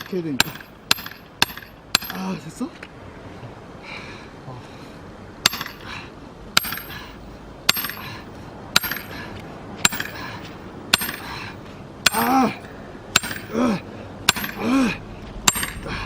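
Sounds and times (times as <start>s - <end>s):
hammer striking metal wedge: 0.0s - 2.3s, 5.4s - 5.9s, 6.6s - 7.1s, 7.7s - 8.1s, 8.8s - 9.2s, 9.8s - 11.4s, 13.1s - 13.6s, 14.3s - 14.7s, 15.4s - 16.0s.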